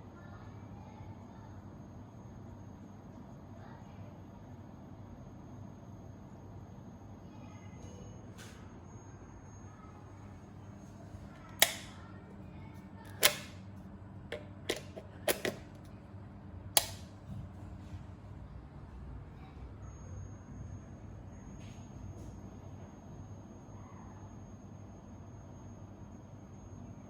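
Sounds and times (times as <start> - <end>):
low steady hum: 9.3 - 21.3
sharp clicks: 11.6 - 12.0, 13.1 - 13.6, 14.7 - 15.6, 16.8 - 17.1.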